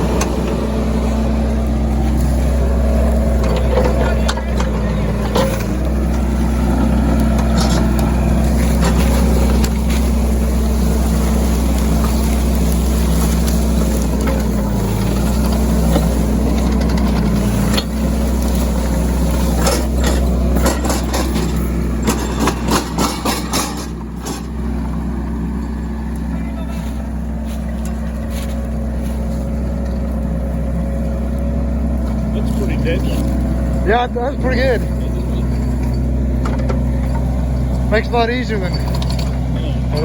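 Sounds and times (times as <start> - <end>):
diesel engine running: 0.0 - 40.0
metal knocks and clanks: 19.5 - 24.6.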